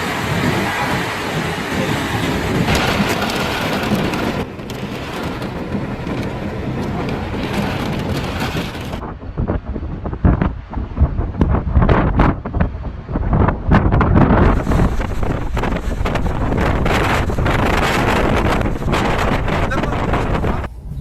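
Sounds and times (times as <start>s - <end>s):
heavy rain rushing: 0.0s - 9.0s, 14.4s - 20.7s
wind buffeting microphone: 0.0s - 21.0s.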